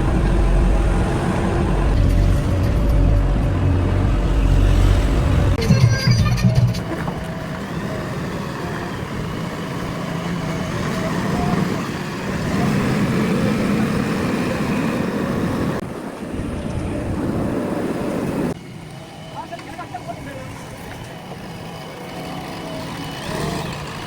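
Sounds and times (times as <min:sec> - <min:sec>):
backhoe diesel engine running: 0:00.0 - 0:15.8, 0:18.6 - 0:24.0.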